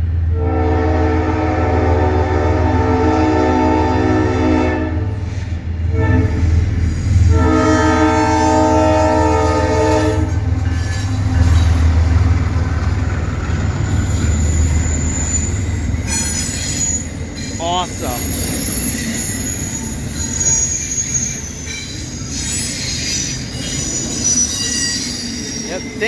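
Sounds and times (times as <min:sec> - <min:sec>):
diesel locomotive engine: 0:00.0 - 0:26.0
locomotive horn blasts: 0:00.3 - 0:05.2, 0:05.9 - 0:06.5, 0:07.3 - 0:11.4
train wheels running: 0:04.9 - 0:26.0
wheel squeal: 0:13.4 - 0:26.0.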